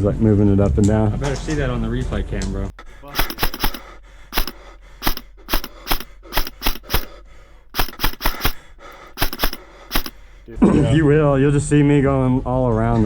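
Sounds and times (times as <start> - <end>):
airsoft guns firing: 3.1 - 10.2.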